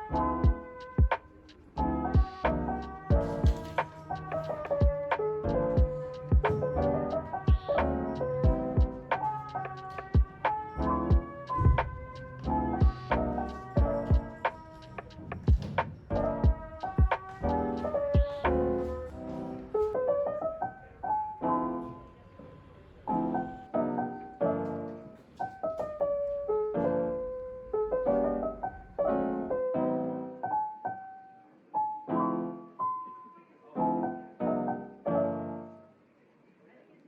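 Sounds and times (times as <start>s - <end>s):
solo piano music: 0.0s - 36.1s.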